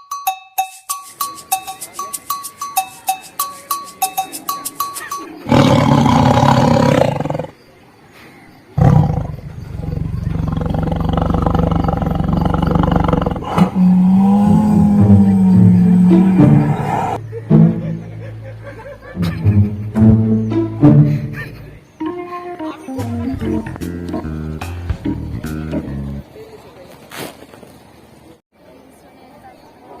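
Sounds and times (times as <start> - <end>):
ticking rhythm: 0.0 - 5.6, 14.5 - 26.2
lion roar through speaker: 5.4 - 7.6, 8.8 - 17.2.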